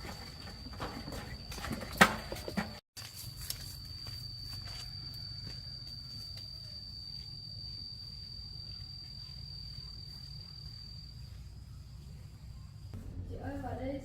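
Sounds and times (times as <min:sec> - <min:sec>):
insect trilling: 0:03.3 - 0:13.0
low rumble: 0:12.8 - 0:14.0.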